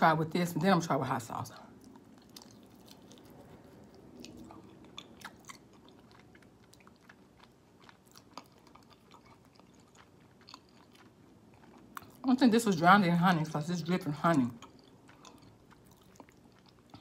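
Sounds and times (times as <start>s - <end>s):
person chewing: 1.6s - 12.2s, 14.3s - 17.0s.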